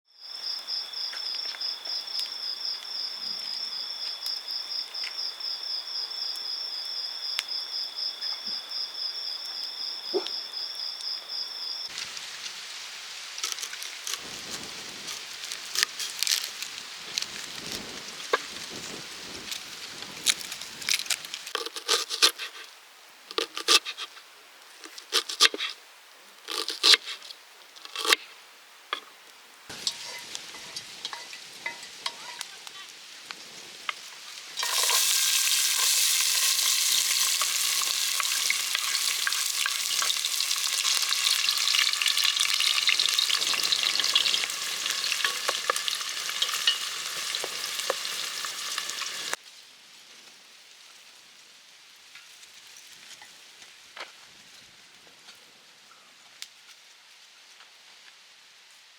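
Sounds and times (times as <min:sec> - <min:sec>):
food sizzling in hot oil: 0:11.9 - 0:22.6, 0:29.7 - 0:32.5, 0:34.0 - 0:49.4
cooking utensils clicking: 0:34.6 - 0:49.4.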